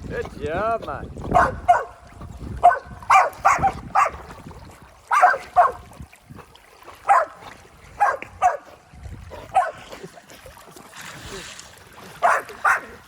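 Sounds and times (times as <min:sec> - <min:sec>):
dog barking in high yips: 0:01.4 - 0:01.9, 0:02.6 - 0:04.2, 0:05.1 - 0:05.8, 0:07.1 - 0:07.3, 0:08.0 - 0:08.6, 0:09.6 - 0:09.8, 0:12.2 - 0:12.9.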